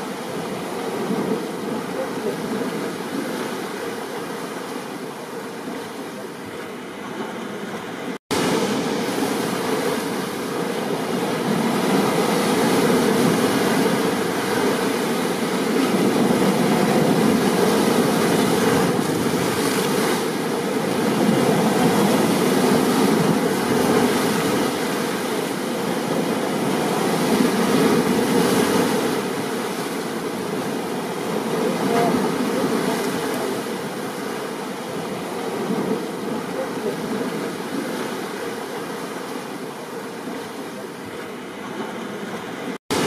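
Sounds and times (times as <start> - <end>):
surf breaking: 8.3 - 39.3.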